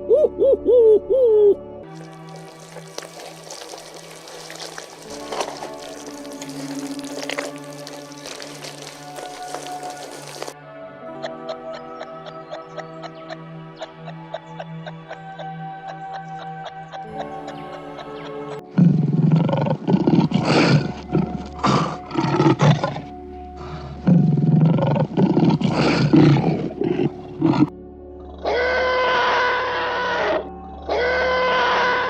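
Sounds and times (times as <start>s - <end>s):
background music: 0.0s - 32.0s
large animal roaring: 2.0s - 10.5s, 18.7s - 32.0s.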